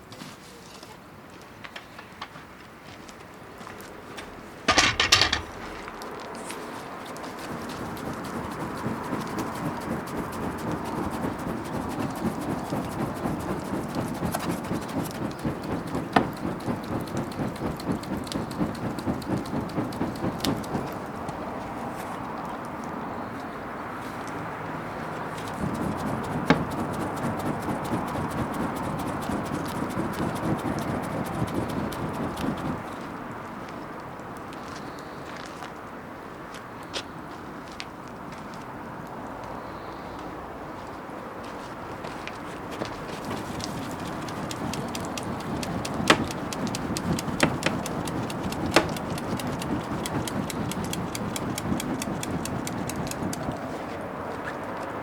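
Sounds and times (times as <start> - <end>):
low rumble of burning: 4.8 - 22.7, 23.6 - 33.4, 42.6 - 54.8
bonfire crackling and popping: 7.1 - 21.4, 25.4 - 32.9, 42.8 - 53.8.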